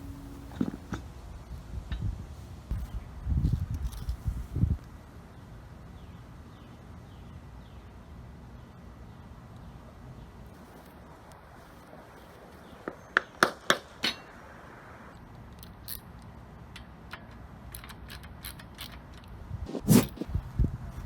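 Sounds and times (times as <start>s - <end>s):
metal tools clinking: 16.7s - 20.3s.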